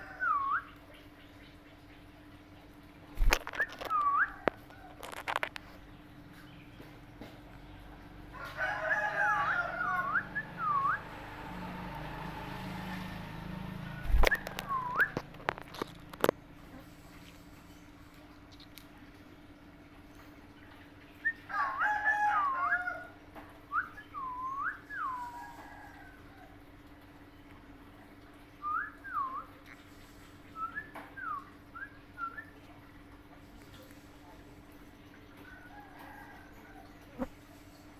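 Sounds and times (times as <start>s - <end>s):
faint steady hum: 0.0s - 37.9s
parrot whistling: 14.0s - 15.2s.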